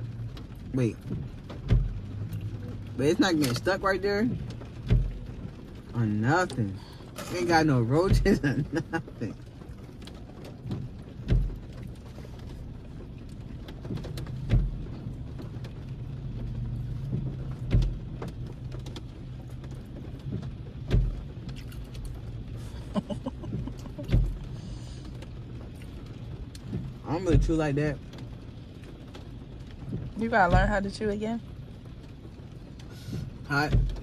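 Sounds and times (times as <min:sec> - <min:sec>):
car idling hum: 0:00.0 - 0:34.0
dull thump: 0:10.7 - 0:11.6, 0:23.4 - 0:24.4.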